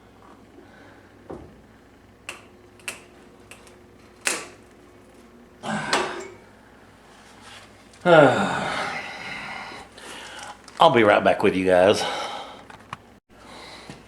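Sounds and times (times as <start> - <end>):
faint steady hum: 0.0 - 14.0
stud welder gun snaps: 2.3 - 4.6.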